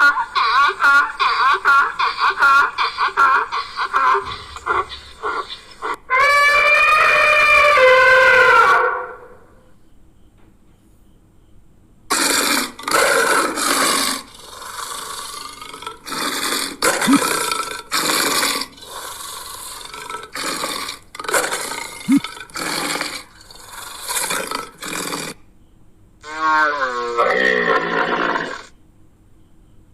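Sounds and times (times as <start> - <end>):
animal calling in rasping bursts: 0.0 - 9.3, 12.1 - 25.4.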